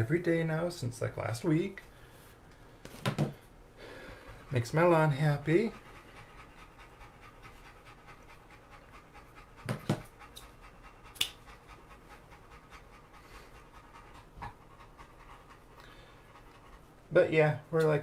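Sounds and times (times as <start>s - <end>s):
dog panting: 4.0s - 17.2s.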